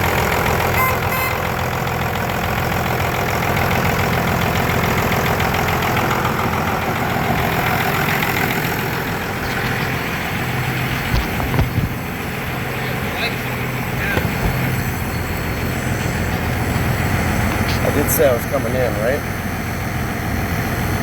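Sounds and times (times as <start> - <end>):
diesel engine idling: 0.0 - 21.0
low thumps: 10.8 - 12.4, 14.0 - 17.9.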